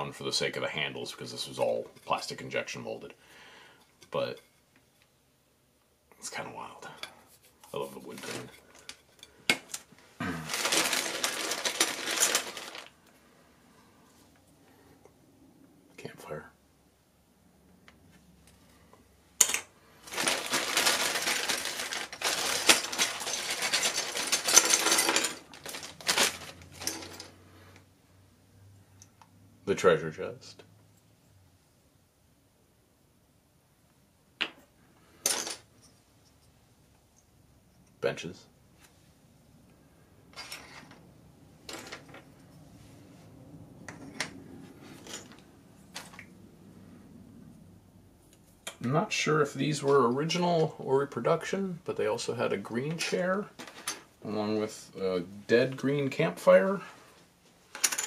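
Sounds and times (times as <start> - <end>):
plastic toy pieces clattering: 10.5 - 12.9, 19.4 - 27.3, 57.7 - 58.0.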